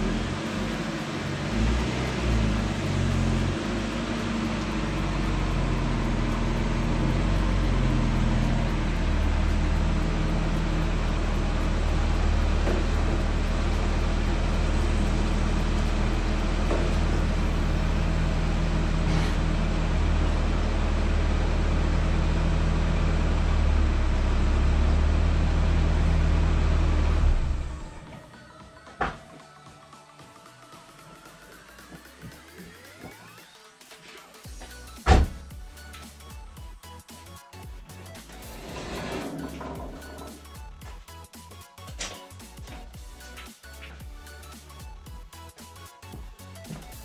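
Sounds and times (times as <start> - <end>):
car engine idling: 0.0 - 28.2.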